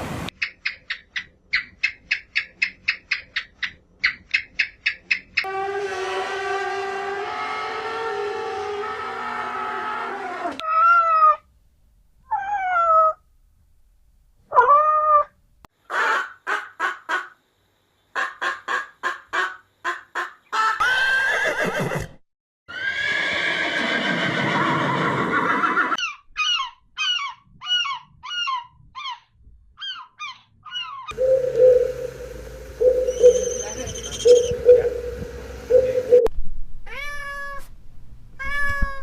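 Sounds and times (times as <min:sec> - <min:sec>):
animal calls: 0:24.4 - 0:36.3
quick chirping notes: 0:31.1 - 0:36.3
rapid pulsed animal calls: 0:31.1 - 0:36.3.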